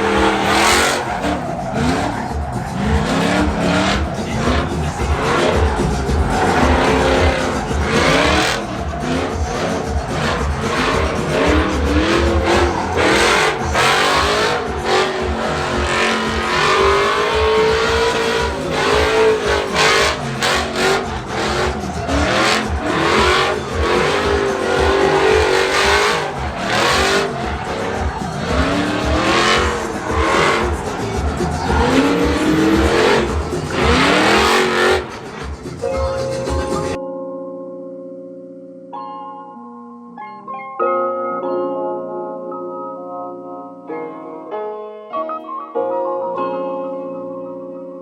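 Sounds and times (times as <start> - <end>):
tyre noise roar: 0.0 - 37.0
vehicle engines revving: 0.0 - 37.0.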